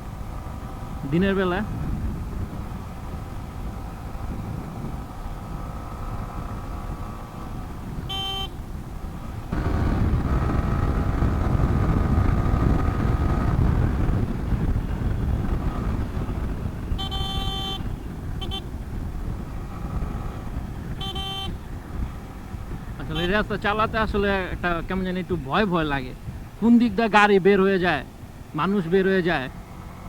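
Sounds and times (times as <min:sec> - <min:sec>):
motorcycle road and wind noise: 0:00.0 - 0:30.0
vehicle horn honks: 0:08.0 - 0:08.6, 0:16.9 - 0:18.7, 0:20.9 - 0:21.6, 0:23.1 - 0:23.4.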